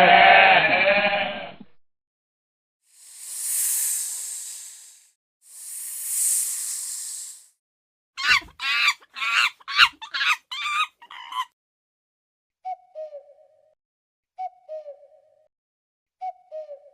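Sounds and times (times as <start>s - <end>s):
snake hissing: 2.9s - 7.6s
chicken clucking: 8.2s - 11.4s.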